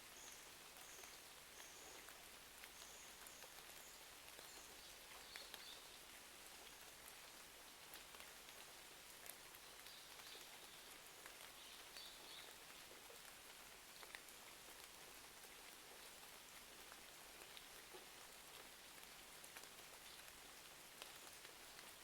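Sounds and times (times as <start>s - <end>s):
rain hiss: 0.0s - 22.0s.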